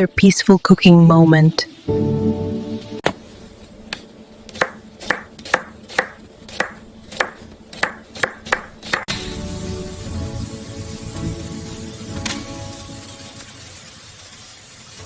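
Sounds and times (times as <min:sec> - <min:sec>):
knife chopping on cutting board: 0:03.9 - 0:09.1.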